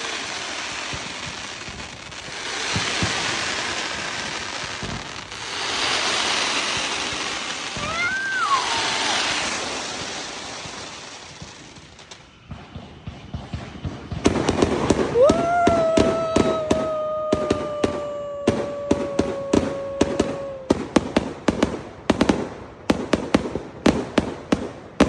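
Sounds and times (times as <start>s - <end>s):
fireworks crackling hiss: 0.0s - 25.0s
fireworks steady whistle: 0.0s - 25.0s
fireworks sharp pops: 0.8s - 8.3s, 9.1s - 25.0s.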